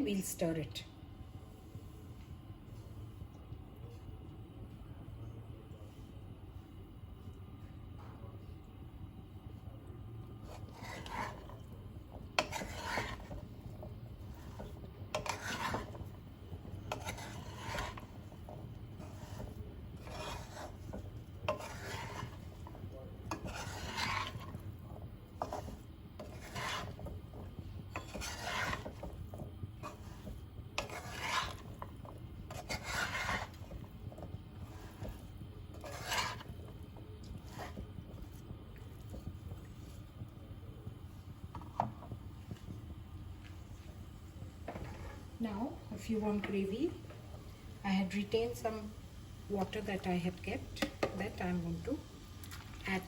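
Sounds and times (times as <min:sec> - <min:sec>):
steady low hum: 0:00.0 - 0:53.0
spatula scraping a pan: 0:10.4 - 0:40.2, 0:41.5 - 0:42.2, 0:44.6 - 0:46.6, 0:48.0 - 0:51.9.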